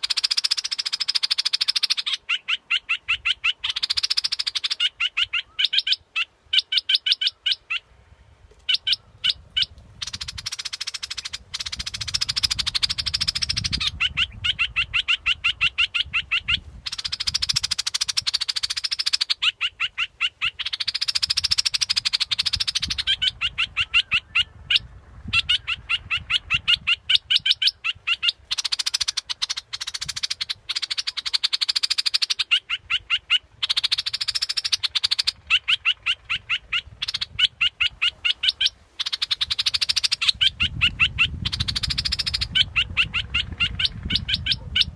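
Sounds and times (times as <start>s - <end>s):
bird chattering song: 0.0s - 7.9s, 8.6s - 44.9s.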